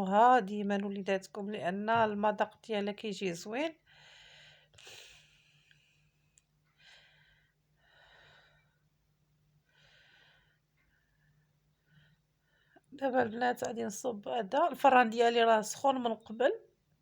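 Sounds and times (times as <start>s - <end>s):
soft breaths: 3.8s - 8.9s, 9.6s - 12.9s.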